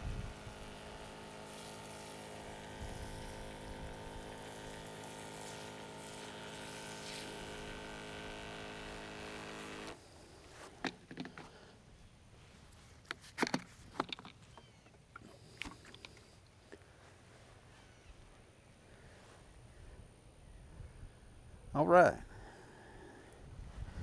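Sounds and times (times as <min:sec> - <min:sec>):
small motor humming: 0:00.0 - 0:10.0.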